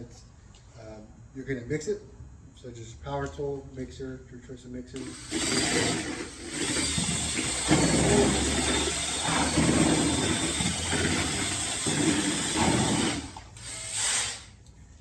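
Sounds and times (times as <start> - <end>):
power drill mixer churning glaze: 5.0 - 14.6.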